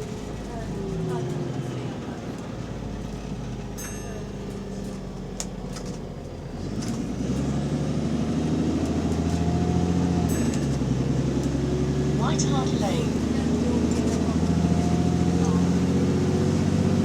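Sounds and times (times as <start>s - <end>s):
bus diesel engine: 0.0s - 17.0s.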